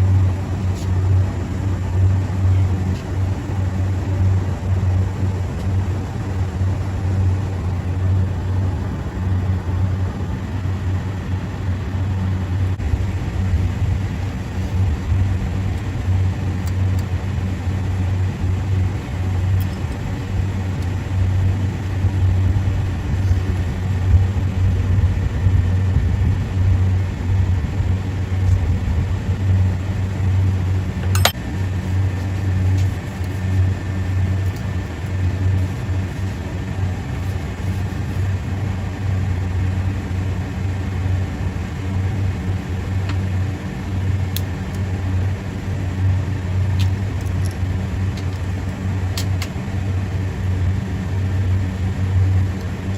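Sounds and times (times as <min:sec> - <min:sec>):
machinery humming: 0:00.0 - 0:52.9
sharp click: 0:31.0 - 0:31.4.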